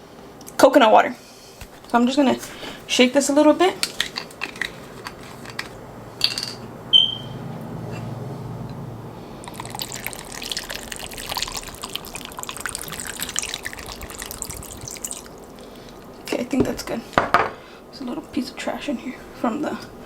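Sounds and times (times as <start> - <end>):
liquid pouring over ice: 9.4 - 15.4.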